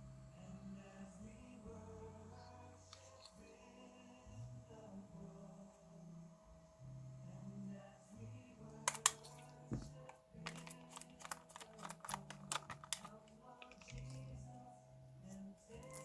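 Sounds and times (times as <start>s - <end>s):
quiet background music: 0.0s - 16.0s
small tools clicking and tapping: 8.9s - 14.3s.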